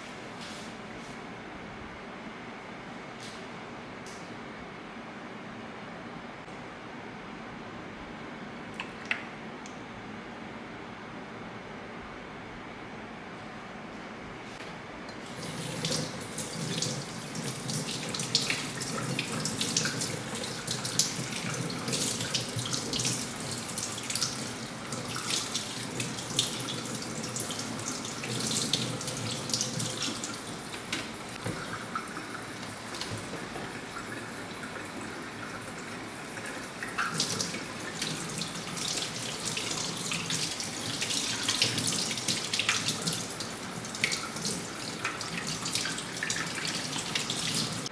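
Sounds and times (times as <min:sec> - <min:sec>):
tap water running into sink: 0:15.1 - 0:47.9.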